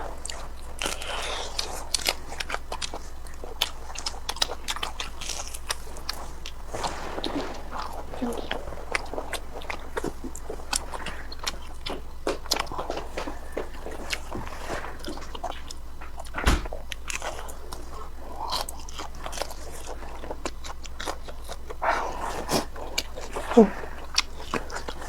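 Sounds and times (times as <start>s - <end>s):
person chewing crispy food: 0.0s - 25.0s
dull bump: 6.6s - 16.9s.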